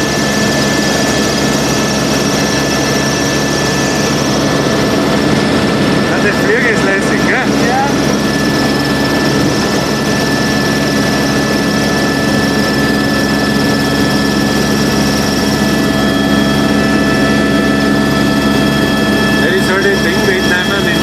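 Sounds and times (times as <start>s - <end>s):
helicopter rotor and engine rumble: 0.0s - 21.0s
high turbine whine: 0.0s - 21.0s.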